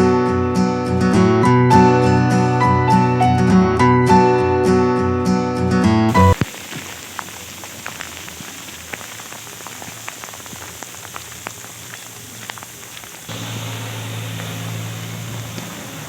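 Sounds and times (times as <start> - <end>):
rain and sleet on car roof: 6.1 - 16.0.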